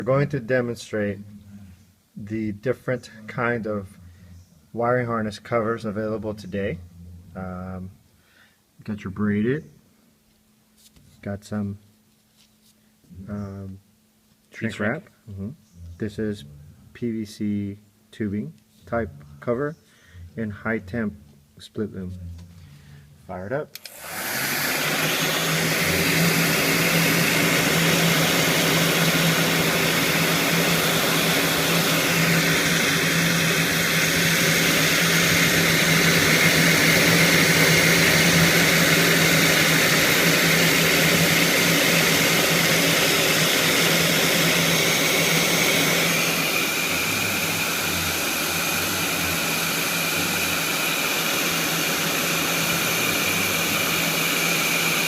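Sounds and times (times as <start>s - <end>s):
heat gun blowing air: 23.7s - 55.0s.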